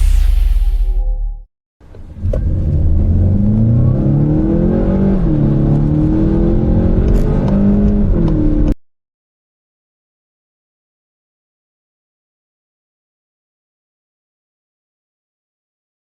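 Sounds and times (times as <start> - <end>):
car engine accelerating hard: 2.1 - 8.8.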